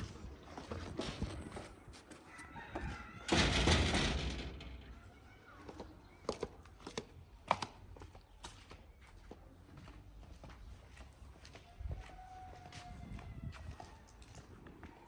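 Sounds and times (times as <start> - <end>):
rooster crowing: 2.2 - 3.4, 11.9 - 13.9.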